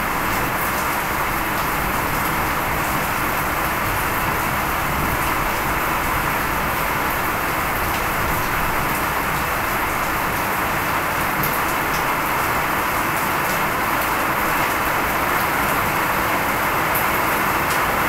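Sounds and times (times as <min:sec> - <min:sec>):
heavy rain on a river: 0:00.0 - 0:18.0.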